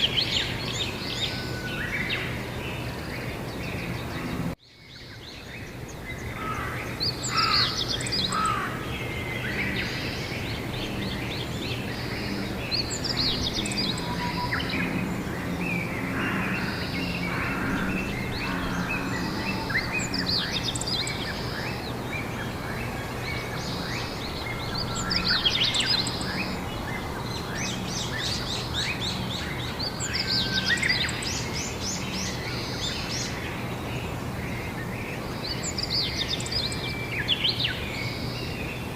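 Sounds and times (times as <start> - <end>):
songbirds chirping and singing: 0.0 - 38.9
steady low hum: 8.0 - 30.5.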